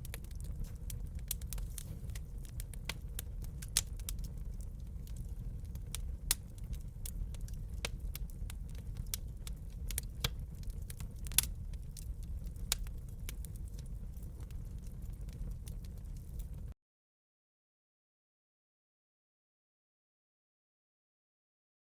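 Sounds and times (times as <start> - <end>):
wood fire crackling: 0.0 - 16.8.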